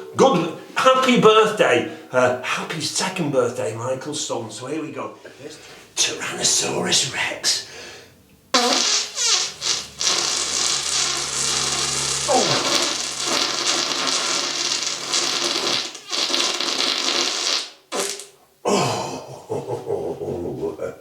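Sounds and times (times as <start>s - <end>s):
rasping fart: 8.5s - 18.4s.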